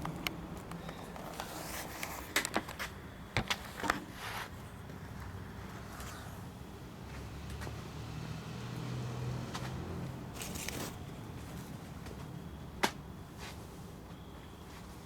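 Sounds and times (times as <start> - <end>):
sharp snap: 12.8 - 13.0.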